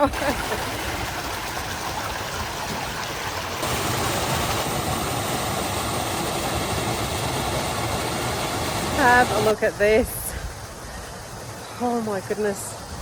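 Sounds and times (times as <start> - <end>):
stream water rushing: 0.0 - 9.8.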